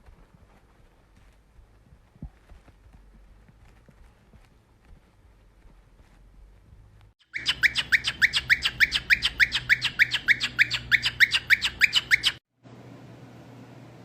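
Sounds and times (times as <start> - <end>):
bird squawking: 7.2 - 12.4.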